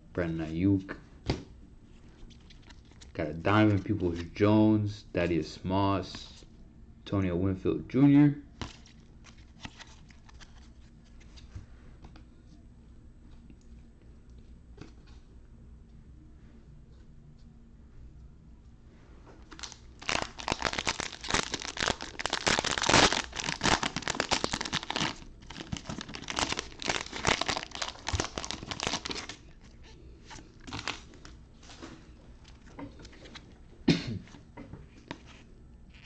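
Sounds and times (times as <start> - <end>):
cards being handled: 8.6 - 12.2, 19.5 - 33.5
card pack wrapper tearing: 19.5 - 29.6, 30.3 - 31.2.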